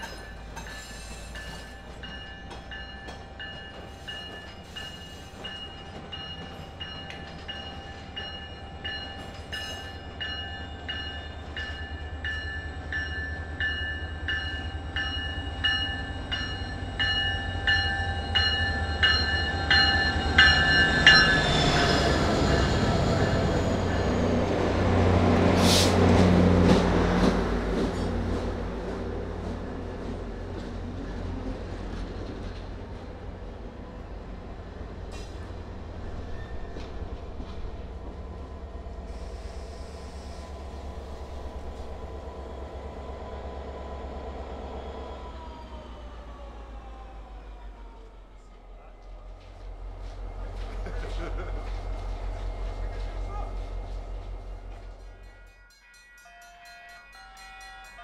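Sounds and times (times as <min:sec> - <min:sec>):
locomotive bell ringing: 0:00.0 - 0:24.5, 0:54.6 - 0:58.0
diesel locomotive passing: 0:00.0 - 0:58.0
train wheels on rails: 0:00.0 - 0:58.0.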